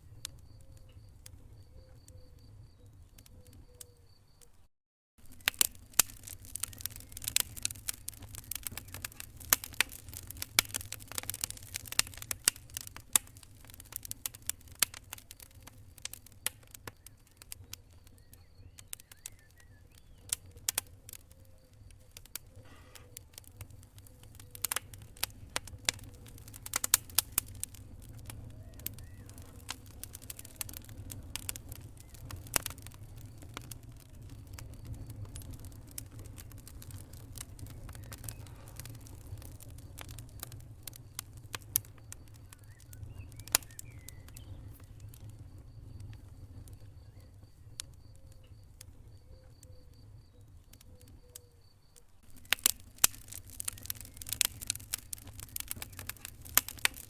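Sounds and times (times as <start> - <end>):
wood fire crackling in fireplace: 0.0 - 4.5, 5.2 - 57.0.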